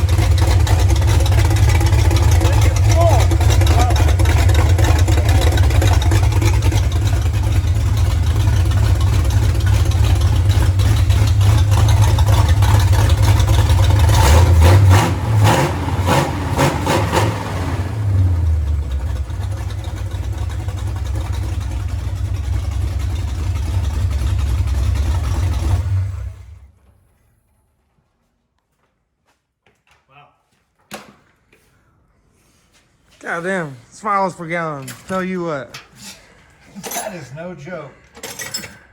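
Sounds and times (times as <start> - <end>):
pickup truck engine revving and idling: 0.0 - 26.7.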